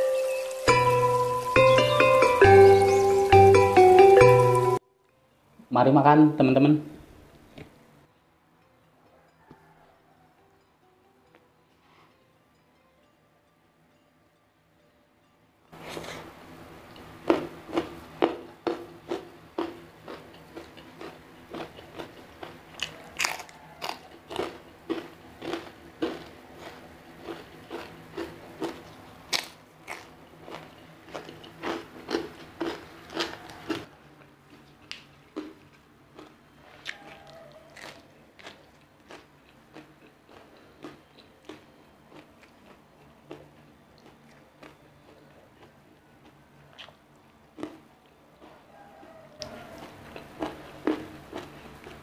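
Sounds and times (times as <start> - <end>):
person chewing crunchy food: 16.9 - 52.0.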